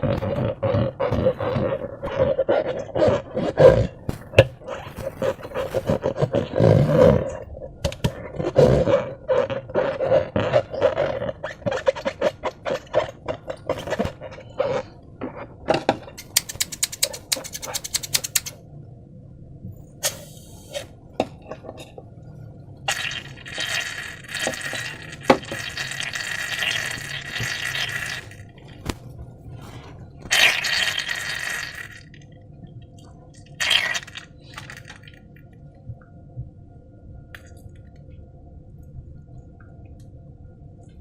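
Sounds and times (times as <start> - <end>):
slime squelching by hand: 0.0 - 15.6, 22.9 - 32.2, 33.3 - 35.4.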